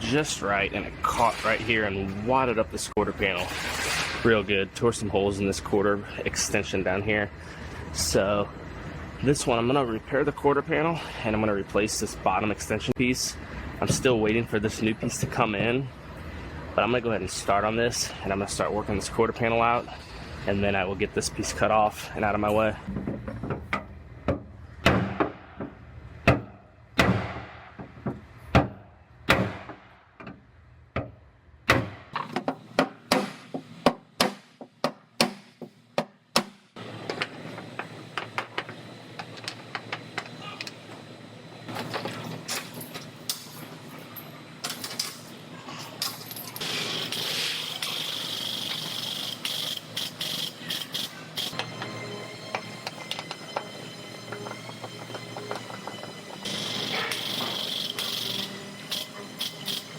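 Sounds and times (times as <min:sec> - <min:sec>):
hissing power tool: 0:46.6 - 0:51.7, 0:56.4 - 0:59.9.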